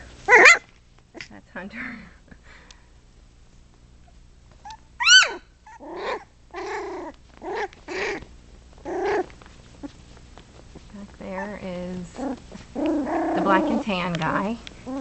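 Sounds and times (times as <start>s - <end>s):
puppy whining yips: 0.3s - 0.6s, 4.6s - 8.2s
puppy yelping: 0.3s - 0.6s, 4.6s - 10.0s, 11.3s - 13.8s.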